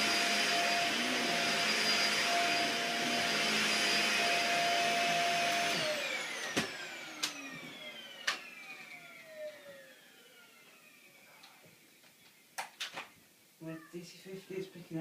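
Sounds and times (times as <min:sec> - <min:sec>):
vacuum cleaner running: 0:00.0 - 0:11.3.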